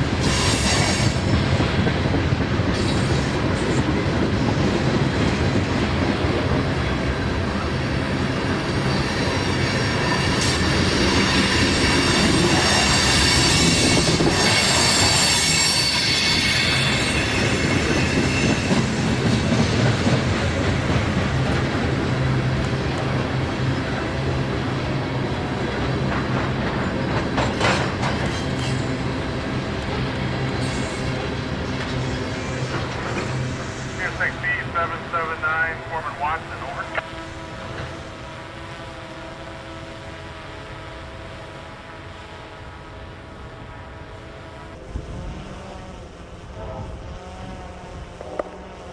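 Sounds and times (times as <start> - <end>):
freight train cars rolling: 0.0 - 35.4
high wheel squeal: 8.9 - 18.9.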